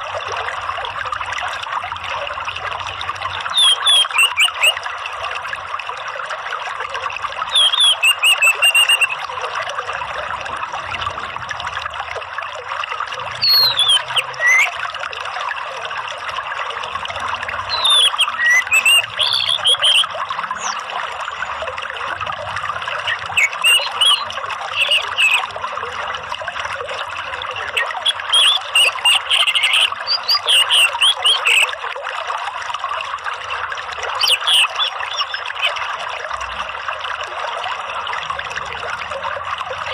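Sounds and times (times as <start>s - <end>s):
trickling water: 0.0s - 39.9s
bird calls and chirps: 2.9s - 4.8s, 7.5s - 9.2s, 13.4s - 14.8s, 17.7s - 21.5s, 22.9s - 25.6s, 27.6s - 31.7s, 34.1s - 35.8s.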